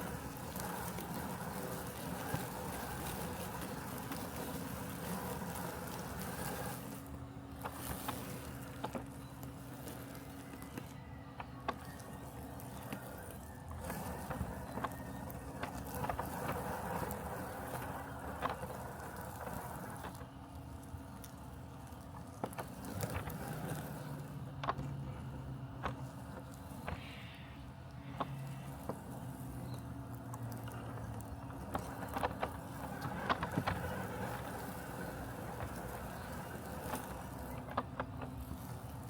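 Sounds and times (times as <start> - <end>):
robotic lawn mower humming: 0.0 - 39.0.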